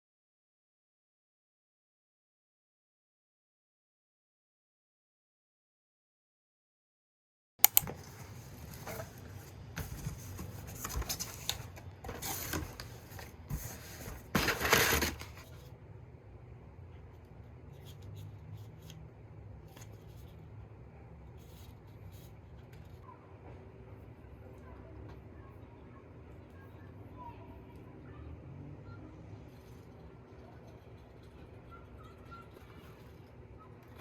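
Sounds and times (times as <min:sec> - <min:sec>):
sharp click: 0:07.6 - 0:07.9
objects rustling and scraping: 0:07.9 - 0:15.7.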